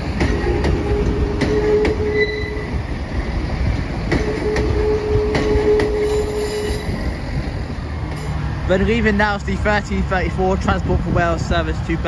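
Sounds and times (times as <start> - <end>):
high wheel squeal: 0.4 - 2.8, 4.2 - 7.1.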